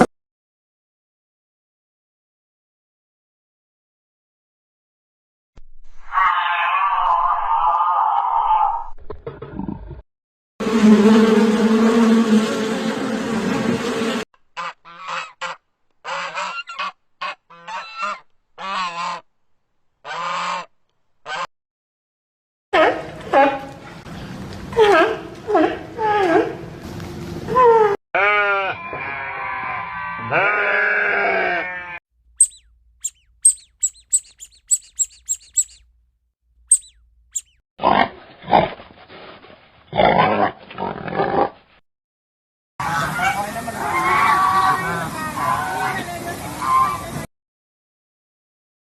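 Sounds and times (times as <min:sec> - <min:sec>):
goose honking: 0:14.6 - 0:19.2, 0:20.0 - 0:21.5, 0:32.4 - 0:35.8, 0:36.7 - 0:37.5
animal bleating: 0:28.2 - 0:32.6
very high chirps: 0:32.3 - 0:35.9, 0:36.7 - 0:37.6.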